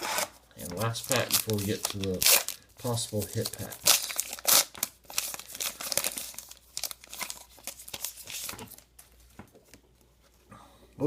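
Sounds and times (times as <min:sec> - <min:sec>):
wrapper tearing and crinkling: 0:00.0 - 0:08.8.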